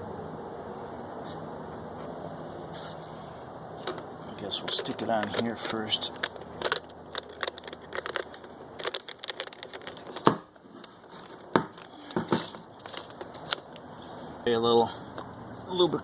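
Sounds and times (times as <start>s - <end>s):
crinkling and clicking of parts: 3.8s - 14.0s.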